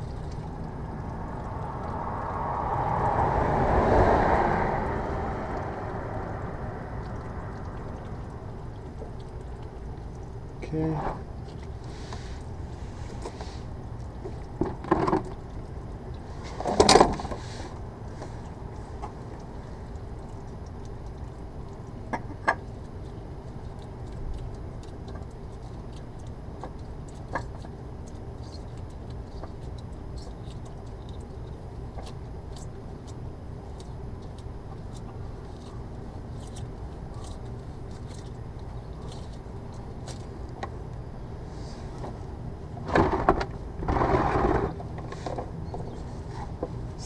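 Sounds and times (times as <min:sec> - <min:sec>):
steady background hum: 0:00.0 - 0:47.0
handling clunks and rustles: 0:16.4 - 0:19.2, 0:41.7 - 0:47.0.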